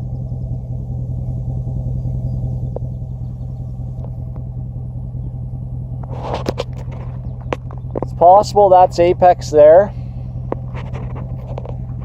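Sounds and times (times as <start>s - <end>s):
truck engine droning: 0.0s - 12.0s
sharp knocks and rattles: 6.0s - 8.5s, 10.4s - 12.0s.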